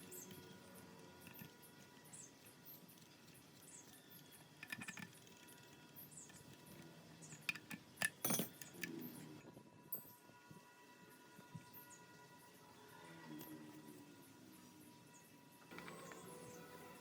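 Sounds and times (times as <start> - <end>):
small metal parts clinking: 4.5 - 9.1.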